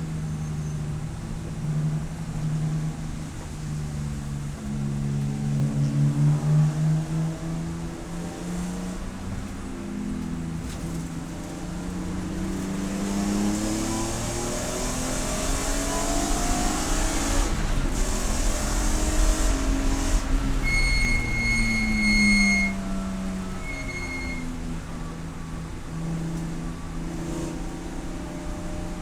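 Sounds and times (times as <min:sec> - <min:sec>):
road and wind noise: 0:00.0 - 0:29.0
race car engine revving: 0:12.0 - 0:24.4
steady electronic beep: 0:20.6 - 0:22.8, 0:23.5 - 0:24.5.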